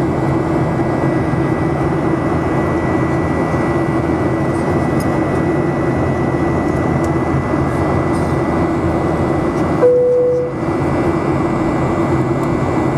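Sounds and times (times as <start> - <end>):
aircraft cabin engine noise: 0.0 - 12.9
short tone: 9.8 - 10.7
faint high whine: 9.8 - 10.8.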